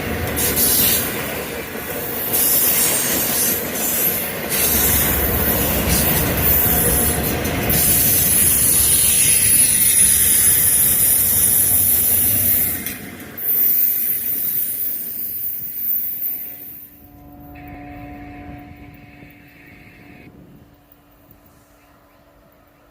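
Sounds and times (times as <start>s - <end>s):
freight train cars rumbling: 0.0s - 22.9s
high wheel squeal: 2.2s - 20.3s.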